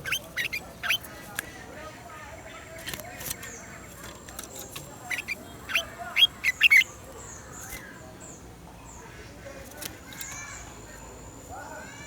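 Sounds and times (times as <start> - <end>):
bird singing sharp notes: 0.0 - 1.1, 4.7 - 6.9
faint high twittering: 0.0 - 1.4, 3.4 - 7.8.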